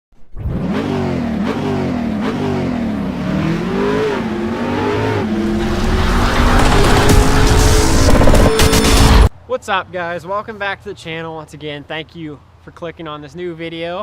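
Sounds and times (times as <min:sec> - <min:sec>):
motocross bike engine revving: 0:00.4 - 0:09.3.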